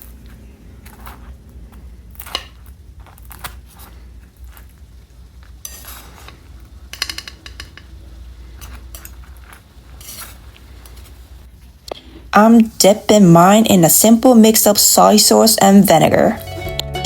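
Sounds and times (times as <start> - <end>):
crispy crust crunching: 0.0 - 6.9, 8.4 - 11.4
utensils clicking on plate: 5.6 - 11.0.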